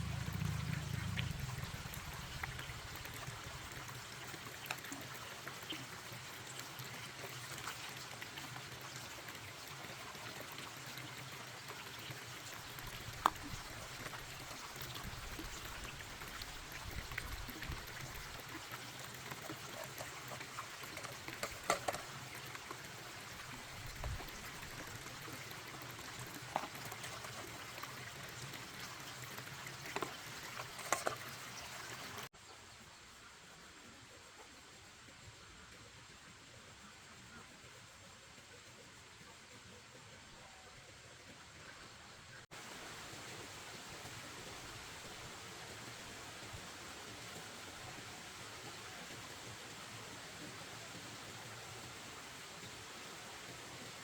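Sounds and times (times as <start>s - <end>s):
water trickling: 0.0s - 32.3s.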